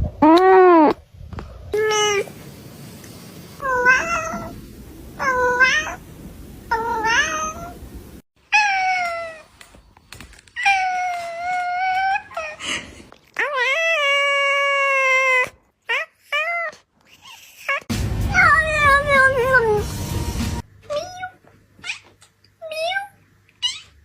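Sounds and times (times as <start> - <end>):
cat meowing: 3.6 - 4.6, 5.2 - 6.0, 6.7 - 7.8, 20.9 - 24.0.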